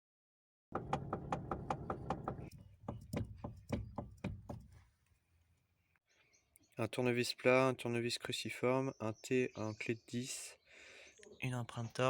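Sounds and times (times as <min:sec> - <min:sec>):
steering column clunking knocks: 0:00.7 - 0:04.8.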